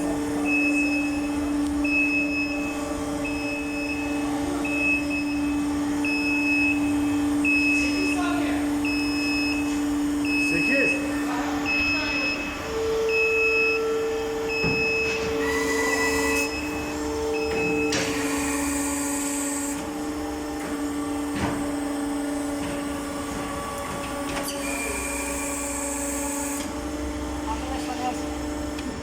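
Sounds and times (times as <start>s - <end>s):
foaming machine hum: 0.0s - 29.0s
beeping buzzer: 0.4s - 8.2s, 8.8s - 19.0s.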